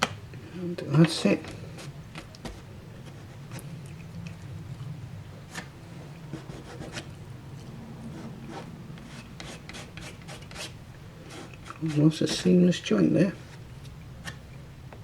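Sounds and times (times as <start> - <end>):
steady low hum: 0.0 - 15.0
hands rubbing and scraping sheet: 11.3 - 12.6.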